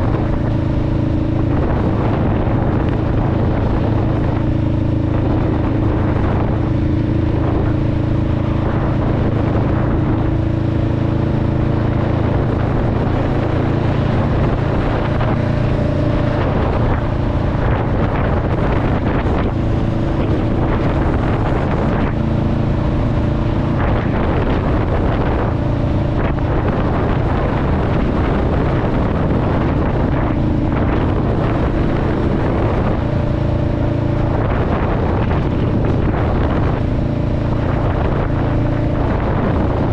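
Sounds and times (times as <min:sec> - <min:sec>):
motorcycle engine and exhaust: 0:00.0 - 0:39.9
wind on microphone: 0:00.0 - 0:39.9.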